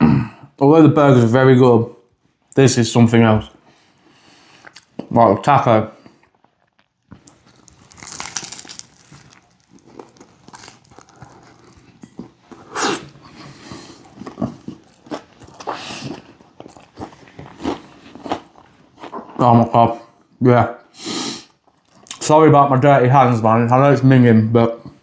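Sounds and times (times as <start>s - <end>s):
person chewing with crunches: 4.4s - 5.1s, 6.0s - 19.7s, 21.3s - 22.2s.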